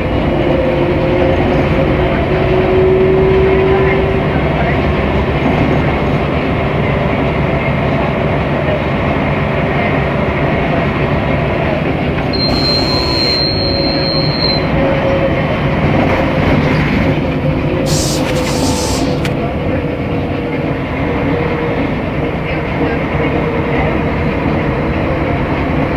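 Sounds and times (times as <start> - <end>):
bus engine rumble: 0.0 - 25.8
high steady tone: 12.4 - 14.7.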